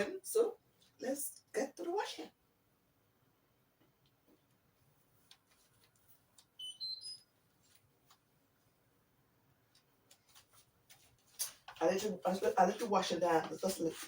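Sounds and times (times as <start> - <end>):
washing machine beeping: 6.6 - 7.2.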